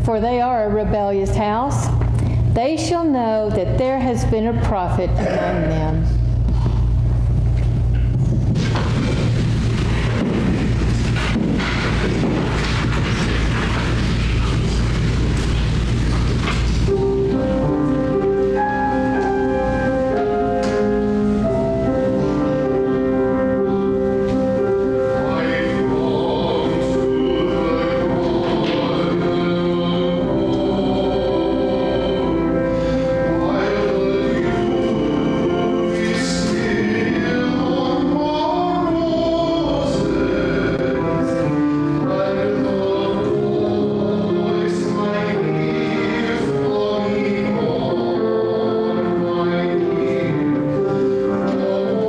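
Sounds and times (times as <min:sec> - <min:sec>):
keyboard playing slow hymn: 0:00.0 - 0:52.0
choir singing sacred chords: 0:17.4 - 0:52.0.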